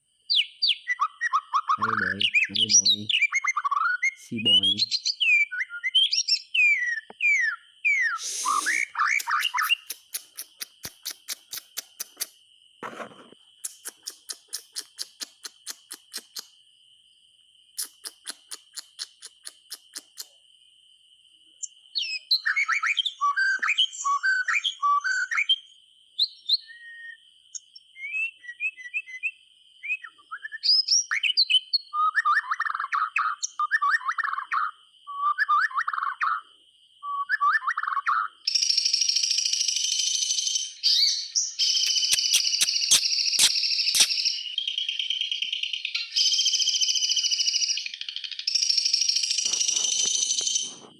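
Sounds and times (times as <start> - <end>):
bird singing whistles and ticks: 0.3 - 12.3, 13.6 - 16.5, 17.8 - 20.4, 41.6 - 44.2.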